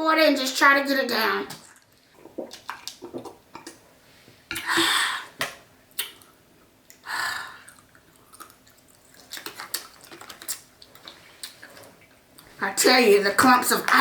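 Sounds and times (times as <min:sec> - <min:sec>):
chewing and swallowing: 0:01.6 - 0:03.8, 0:07.6 - 0:12.6.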